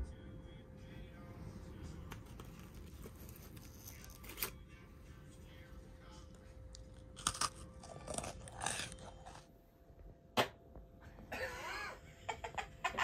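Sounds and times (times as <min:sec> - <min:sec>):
crunching and chewing cookie: 0:06.0 - 0:09.5.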